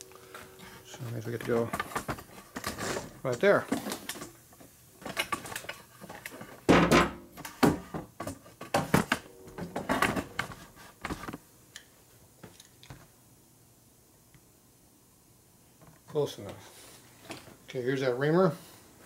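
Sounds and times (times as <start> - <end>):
tools knocking and clattering: 5.0 - 10.5.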